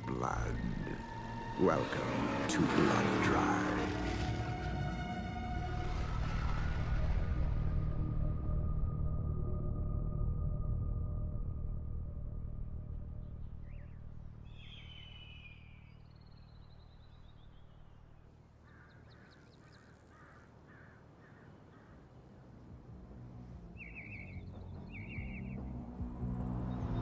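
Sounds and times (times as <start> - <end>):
low drone: 0.0 - 18.2
birds calling: 13.4 - 22.7, 23.5 - 25.8.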